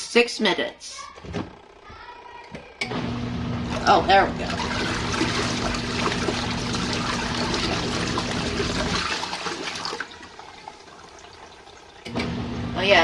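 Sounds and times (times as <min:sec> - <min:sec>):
water rushing into washing machine: 0:02.9 - 0:13.0.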